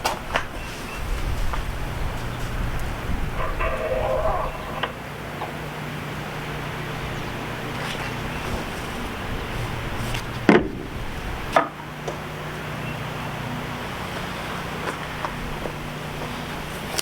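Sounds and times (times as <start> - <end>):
steady low hum: 0.0 - 17.0
loud sharp knocks: 10.4 - 10.9.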